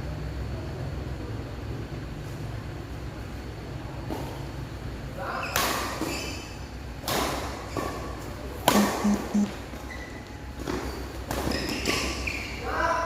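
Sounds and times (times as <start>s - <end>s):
rackets striking shuttlecock: 8.6s - 9.4s.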